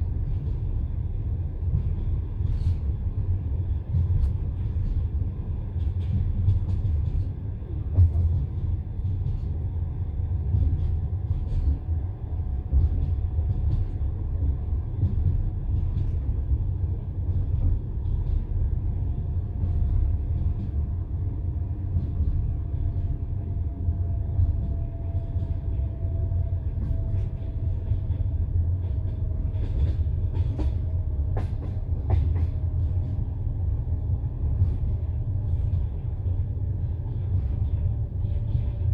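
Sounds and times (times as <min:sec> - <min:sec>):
train carriage rumbling: 0:00.0 - 0:38.9.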